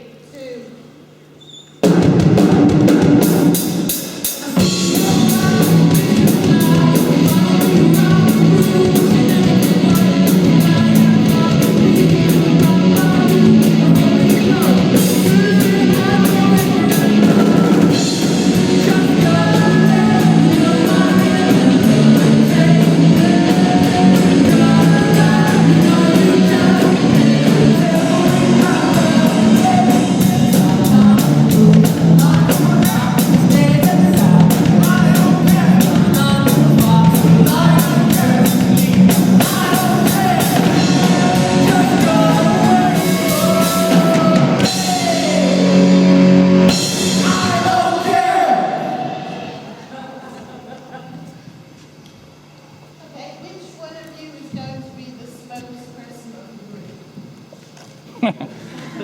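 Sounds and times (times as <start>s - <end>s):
guitar: 1.7s - 49.8s
drum kit beat: 1.8s - 49.4s
person singing: 4.3s - 50.0s.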